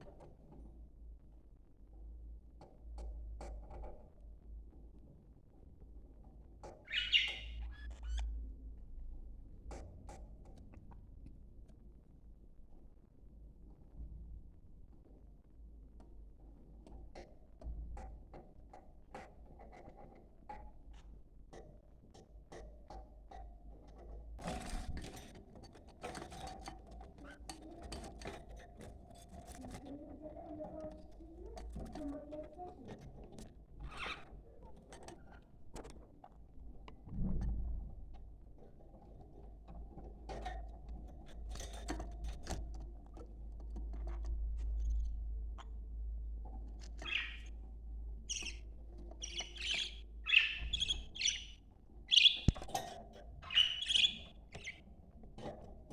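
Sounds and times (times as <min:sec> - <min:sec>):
budgerigars chirping: 0:06.9 - 0:07.6, 0:47.0 - 0:47.5, 0:48.3 - 0:48.6, 0:49.2 - 0:52.6, 0:53.4 - 0:54.8.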